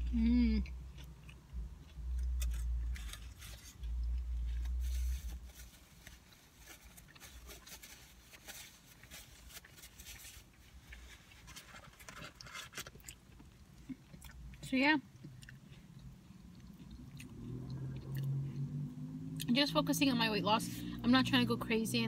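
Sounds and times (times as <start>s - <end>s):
person chewing food: 0.0s - 5.4s, 9.0s - 14.6s, 15.2s - 18.7s
low rumbles: 0.0s - 6.1s.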